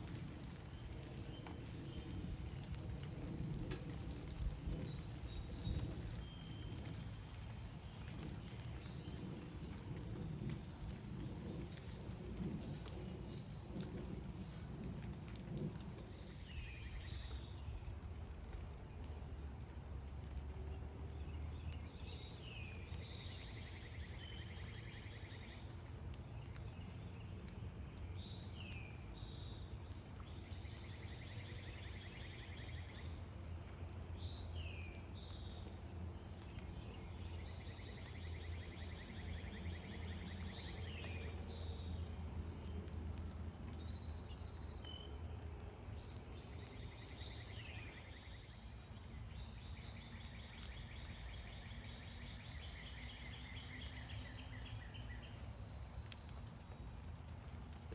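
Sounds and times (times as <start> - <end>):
steady low rumble: 0.0 - 22.9.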